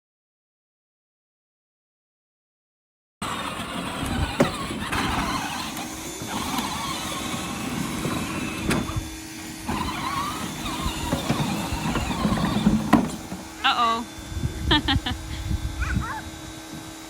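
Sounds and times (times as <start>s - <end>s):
toy tractor electric motor whining: 3.2s - 14.1s.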